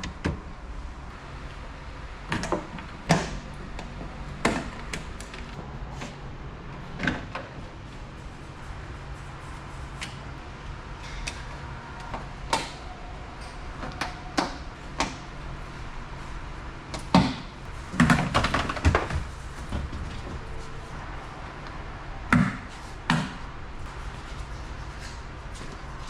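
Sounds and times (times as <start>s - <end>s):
steady low hum: 0.0s - 26.0s
tools and car parts knocking: 2.3s - 5.5s, 16.9s - 20.4s.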